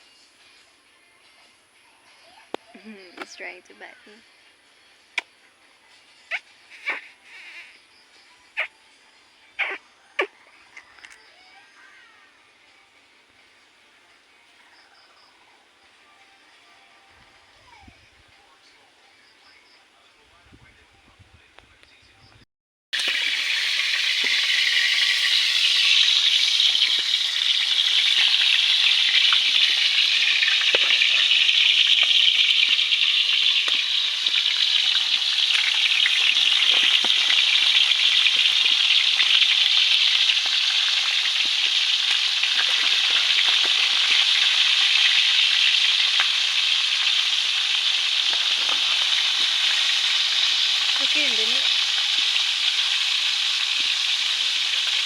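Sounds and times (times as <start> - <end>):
food sizzling in hot oil: 23.0 - 55.0
oil crackles: 23.0 - 55.0.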